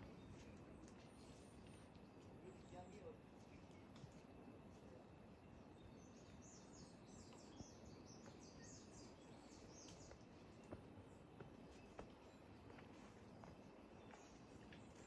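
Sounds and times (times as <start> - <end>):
bird chirping: 5.5 - 10.8.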